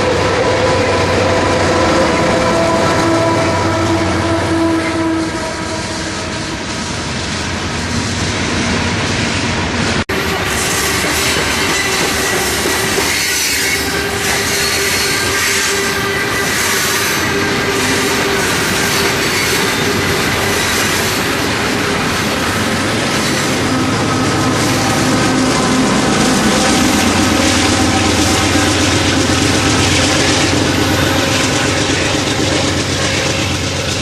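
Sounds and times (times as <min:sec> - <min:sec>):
train wheels clickety-clack: 0:06.1 - 0:34.0
wheel squeal: 0:10.3 - 0:21.5.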